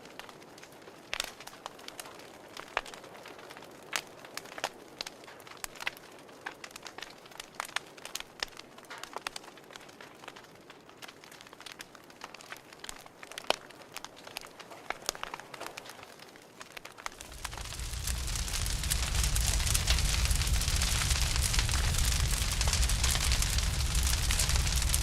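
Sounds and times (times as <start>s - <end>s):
campfire crackling: 0.0s - 25.0s
soft steady hiss: 16.2s - 25.0s.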